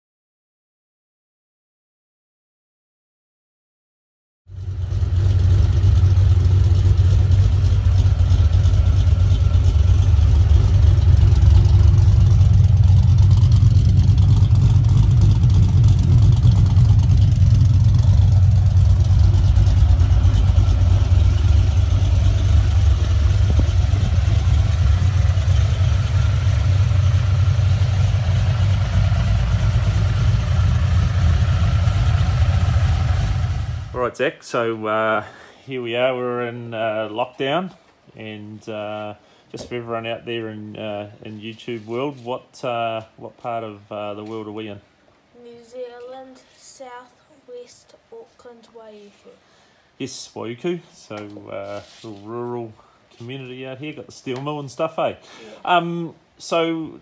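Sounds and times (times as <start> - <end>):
car engine idling: 4.5 - 34.1.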